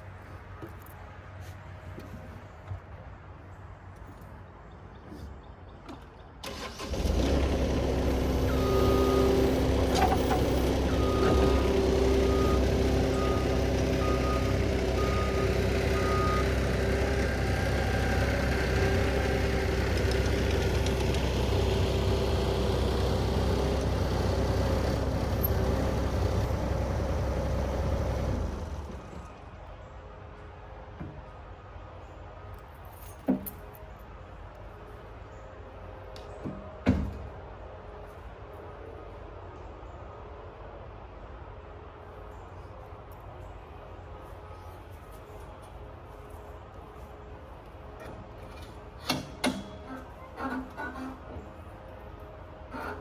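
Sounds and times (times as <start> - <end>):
skid steer engine running: 6.4 - 29.6, 46.2 - 53.0.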